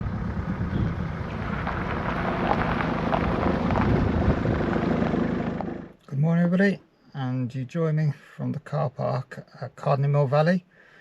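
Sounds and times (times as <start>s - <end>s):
low rumble: 0.0s - 6.0s
steady rushing noise: 0.0s - 6.0s.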